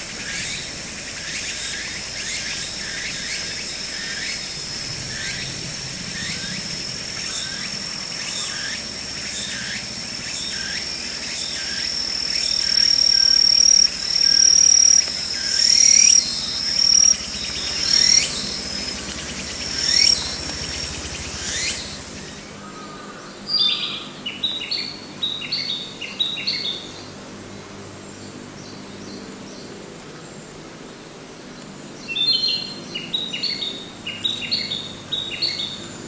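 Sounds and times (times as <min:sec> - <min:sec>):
cricket trilling: 0:00.0 - 0:23.8
short sweeping insect chirps: 0:00.4 - 0:10.8, 0:11.4 - 0:22.5.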